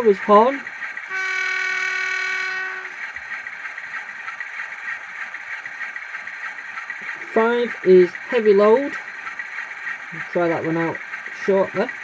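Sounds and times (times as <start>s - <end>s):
model train horn: 1.0s - 3.1s.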